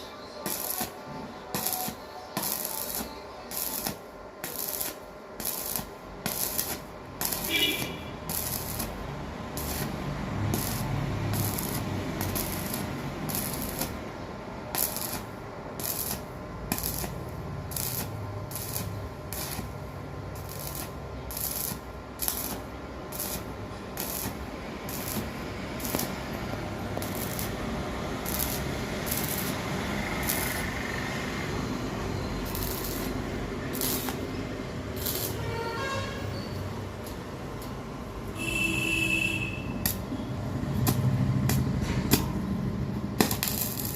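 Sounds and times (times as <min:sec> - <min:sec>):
steady hiss: 0:00.0 - 0:35.6
scraping strokes on metal: 0:00.4 - 0:09.0, 0:20.4 - 0:26.3, 0:35.0 - 0:36.6.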